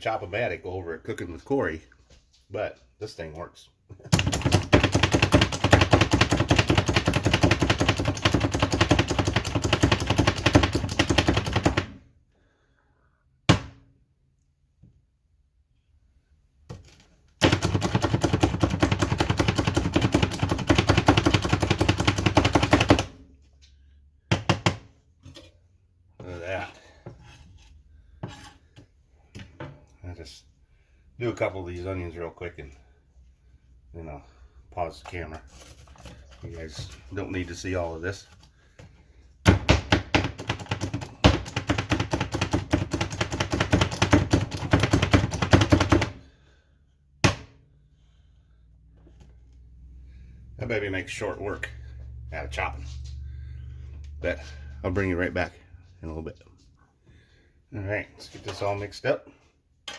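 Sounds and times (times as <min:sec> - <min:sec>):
vegetable chopper clacking: 0:04.1 - 0:11.9, 0:17.4 - 0:23.1, 0:40.0 - 0:46.2.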